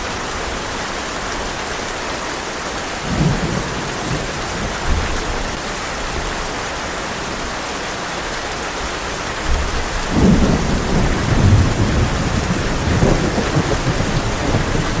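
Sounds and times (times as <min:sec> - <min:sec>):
heavy rain on a tin roof: 0:00.0 - 0:15.0
thunder rumbling: 0:09.5 - 0:15.0.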